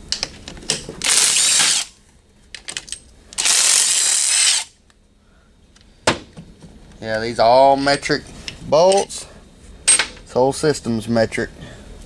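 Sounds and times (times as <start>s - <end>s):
power tool spinning bolts: 1.0s - 1.9s, 3.4s - 4.7s.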